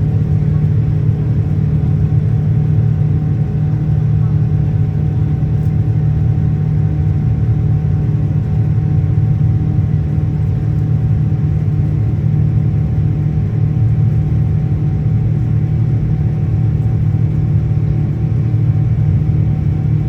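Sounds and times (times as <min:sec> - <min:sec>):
jet engine drone in cabin: 0:00.0 - 0:20.0.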